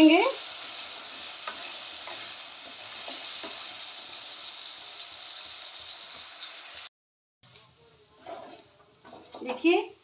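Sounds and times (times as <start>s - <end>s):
food frying in oil: 0.0s - 6.9s.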